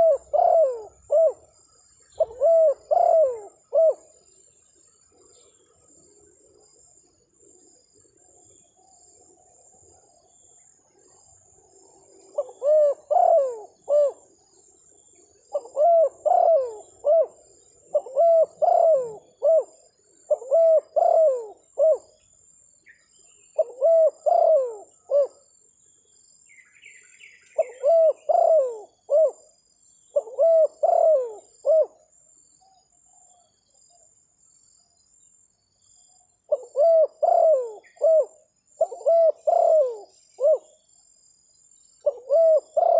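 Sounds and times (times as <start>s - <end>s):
dove cooing: 0.0s - 1.5s, 2.1s - 4.2s, 11.8s - 14.3s, 15.5s - 22.2s, 23.6s - 25.4s, 27.5s - 29.5s, 30.2s - 32.0s, 36.5s - 40.7s, 42.0s - 42.9s.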